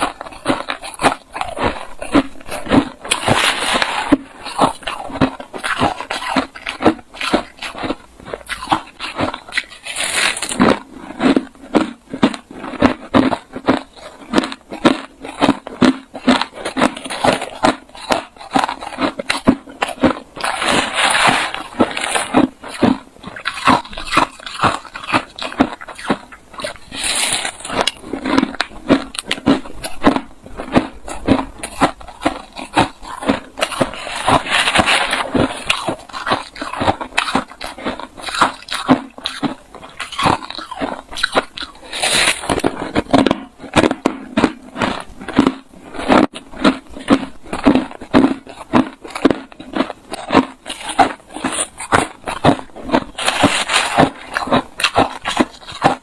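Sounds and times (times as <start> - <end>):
person chewing crushed ice: 0.0 - 56.0.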